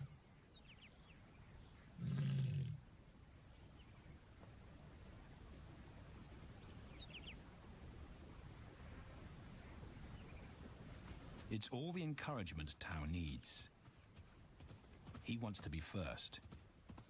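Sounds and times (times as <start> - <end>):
faint bird chirps: 0.0 - 7.6.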